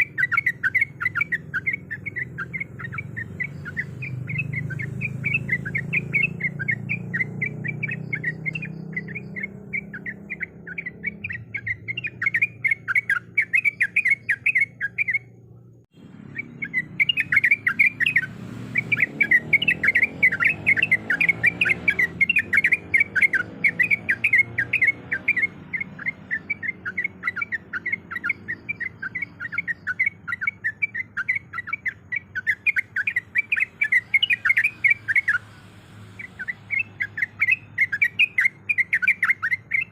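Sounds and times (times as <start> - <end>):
bulbul chattering chirps: 0.0 - 39.9.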